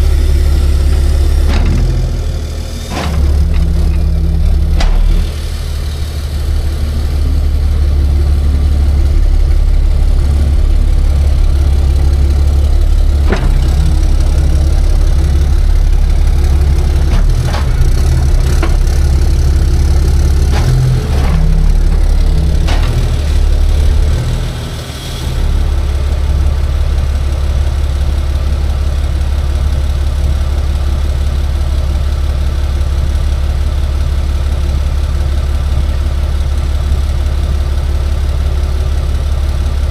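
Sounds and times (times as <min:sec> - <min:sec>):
truck engine idling: 0:00.0 - 0:39.9
sharp clicks or knocks: 0:02.9 - 0:05.5.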